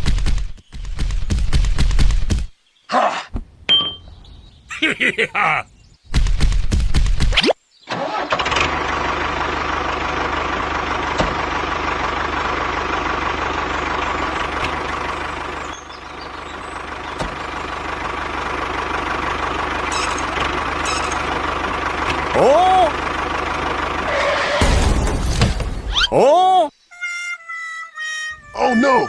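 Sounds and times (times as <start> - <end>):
tractor motor running with whine: 7.9 - 24.7.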